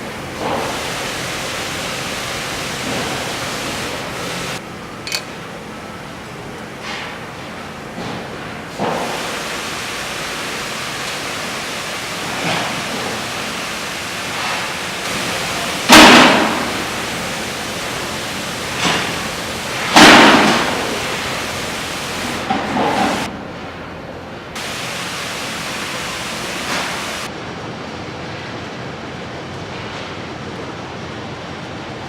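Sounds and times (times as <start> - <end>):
welding arc hissing: 0.0 - 5.2, 8.8 - 23.3, 24.6 - 27.3.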